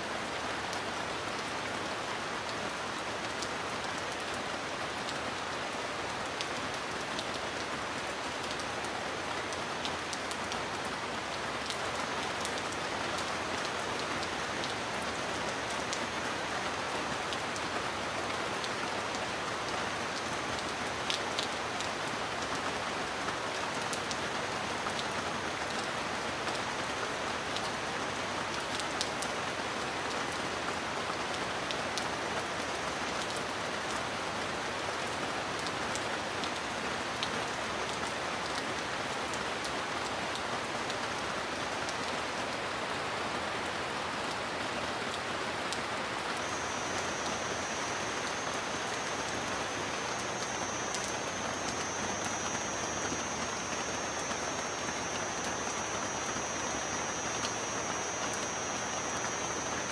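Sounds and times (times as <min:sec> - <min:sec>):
heavy rain hissing: 0:44.2 - 0:59.9.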